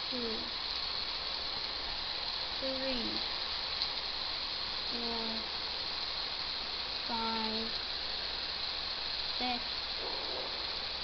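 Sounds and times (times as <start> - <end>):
steady hiss: 0.0 - 11.0
low hum: 4.2 - 11.0.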